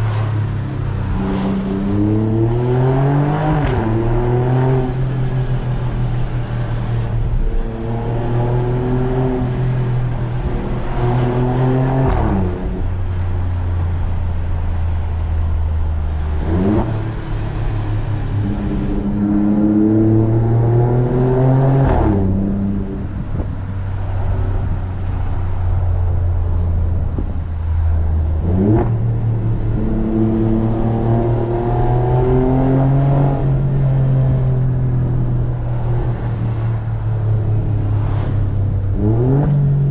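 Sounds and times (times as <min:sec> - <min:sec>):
car engine revving through gears: 0:00.0 - 0:13.6, 0:16.0 - 0:23.0, 0:28.3 - 0:34.8, 0:37.4 - 0:39.9.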